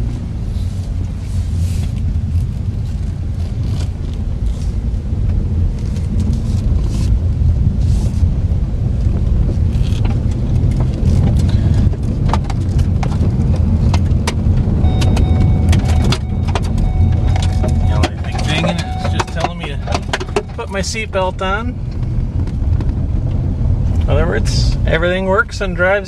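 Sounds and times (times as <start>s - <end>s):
road and engine rumble: 0.0s - 26.0s
seatbelt reminder chime: 14.8s - 21.1s.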